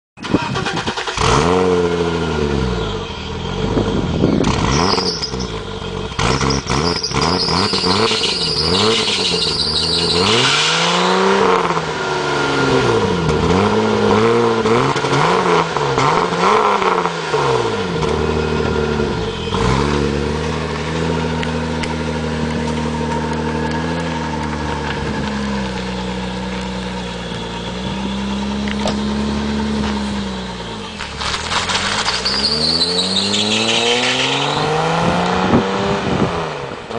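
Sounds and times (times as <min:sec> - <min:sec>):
car engine revving: 0:00.3 - 0:36.9
engine belt squealing: 0:02.6 - 0:11.1, 0:18.2 - 0:35.1.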